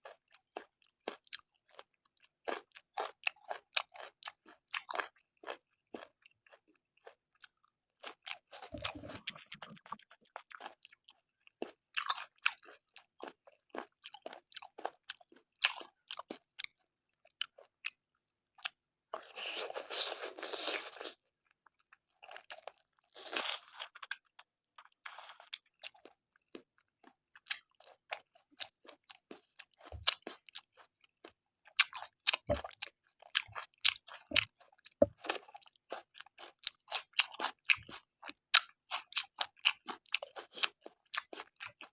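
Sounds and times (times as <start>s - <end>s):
chewing and crunching: 0.0s - 41.9s
wet mouth clicks: 8.7s - 10.6s.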